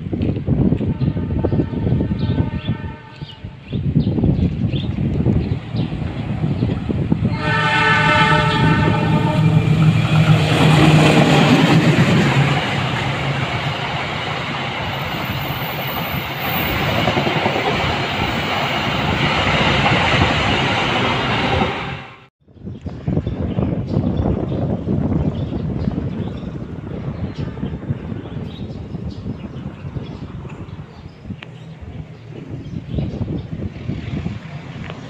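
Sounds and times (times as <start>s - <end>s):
diesel locomotive engine: 0.1s - 22.3s
locomotive horn: 0.8s - 3.6s, 7.2s - 11.4s
wheels clacking on rail: 4.5s - 21.9s.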